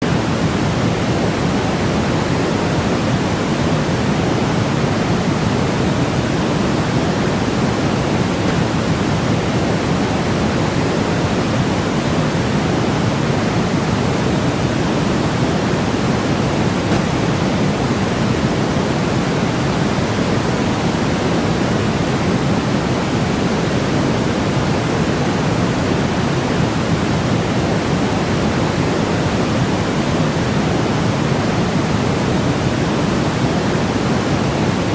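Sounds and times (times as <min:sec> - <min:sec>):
steady rushing noise: 0:00.0 - 0:23.9.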